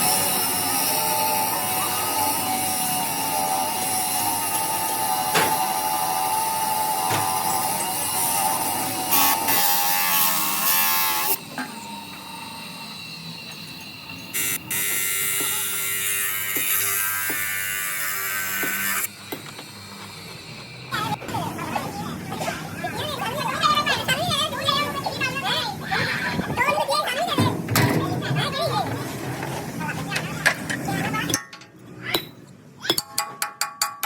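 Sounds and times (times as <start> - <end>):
power tool whining: 0.0 - 21.2.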